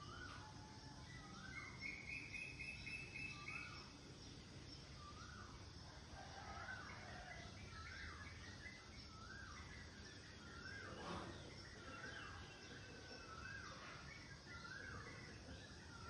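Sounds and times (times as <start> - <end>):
low background noise: 0.0 - 16.0
bird whistled call: 1.2 - 3.9.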